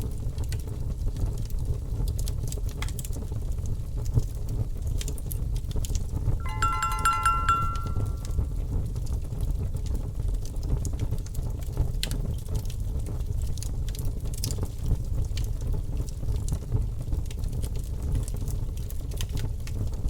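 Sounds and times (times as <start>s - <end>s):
wood fire crackling: 12.0s - 16.6s.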